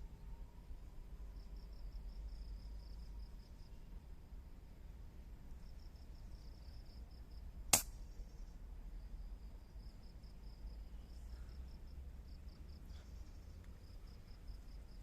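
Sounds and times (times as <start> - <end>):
air rifle shot: 7.7 - 8.0.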